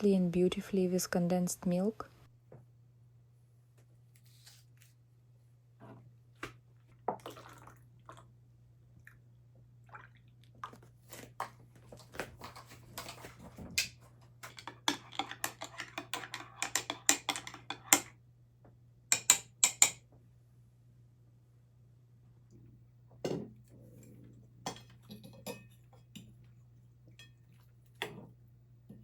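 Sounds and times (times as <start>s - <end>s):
cutlery and dishes clinking: 14.4s - 18.1s, 24.7s - 26.3s.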